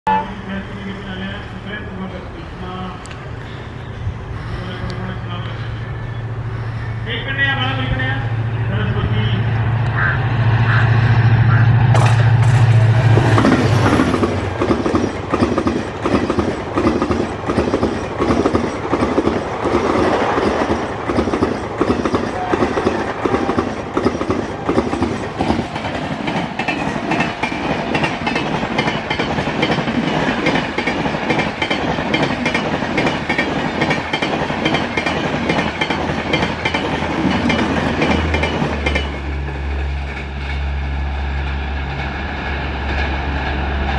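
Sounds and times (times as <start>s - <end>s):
locomotive engine: 0.1s - 43.9s
wheels clattering over rail joints: 11.9s - 43.9s.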